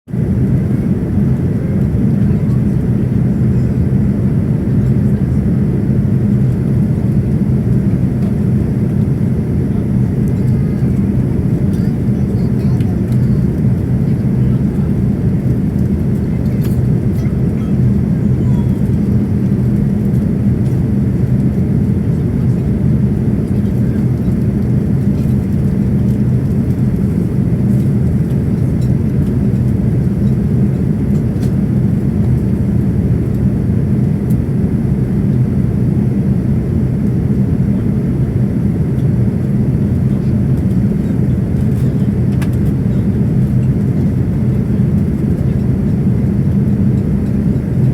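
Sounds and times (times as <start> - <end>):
airplane cabin engine rumble: 0.1 - 47.9.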